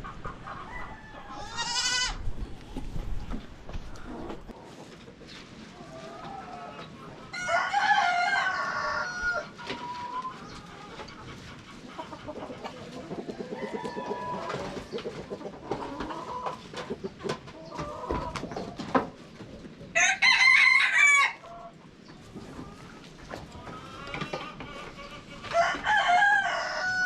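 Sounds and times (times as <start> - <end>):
chickens clucking: 0.0 - 27.0
rooster crowing: 0.7 - 1.8, 7.3 - 9.5, 20.0 - 21.4, 25.5 - 27.0.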